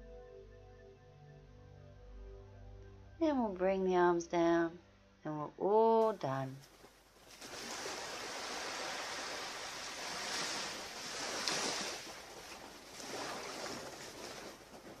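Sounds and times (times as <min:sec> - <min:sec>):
surf washing onto beach: 0:07.3 - 0:15.0.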